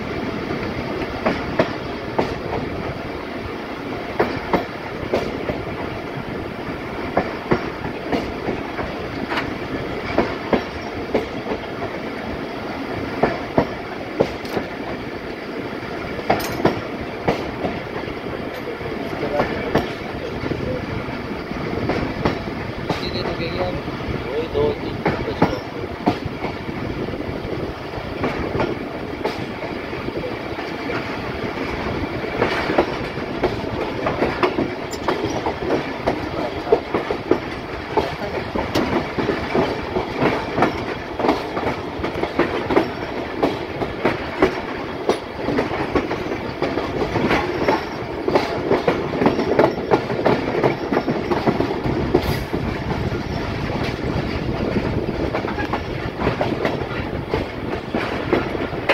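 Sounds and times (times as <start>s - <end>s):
train rumbling on track: 0.0s - 58.9s
wheels clacking over rail joints: 0.0s - 58.9s.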